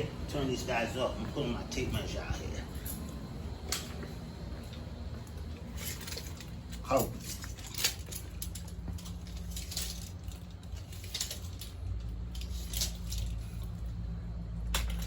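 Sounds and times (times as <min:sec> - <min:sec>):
steady low hum: 0:00.0 - 0:15.0
tape measure clicking and rattling: 0:05.8 - 0:13.9.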